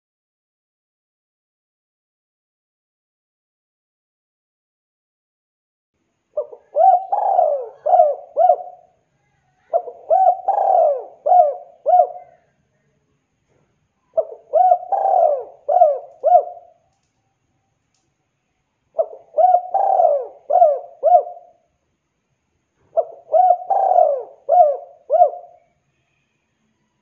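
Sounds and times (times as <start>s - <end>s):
dove cooing: 6.4s - 9.0s, 9.6s - 12.5s, 14.1s - 16.8s, 19.0s - 21.6s, 22.8s - 25.7s.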